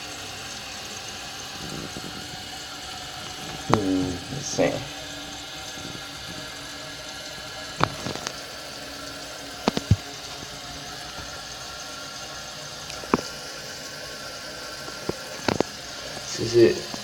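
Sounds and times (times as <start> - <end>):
toilet tank refilling: 0.0 - 17.0
sharp knocks and clicks: 9.7 - 10.0.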